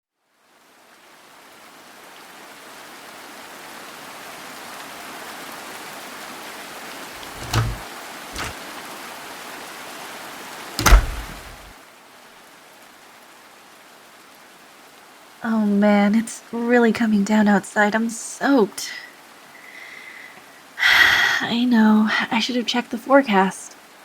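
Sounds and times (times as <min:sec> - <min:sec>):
door banging shut: 0:07.2 - 0:07.8, 0:08.4 - 0:08.6, 0:10.8 - 0:11.7
door thuds: 0:07.2 - 0:07.8, 0:08.4 - 0:08.6, 0:10.8 - 0:11.7
steady rain: 0:13.4 - 0:15.8.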